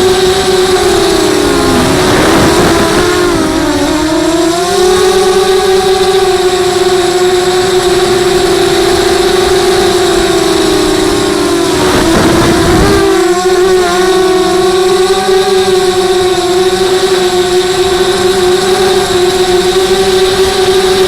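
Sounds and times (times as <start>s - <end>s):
rushing noise: 0.0s - 4.6s, 7.9s - 14.7s
quadcopter motors whining: 0.0s - 21.0s.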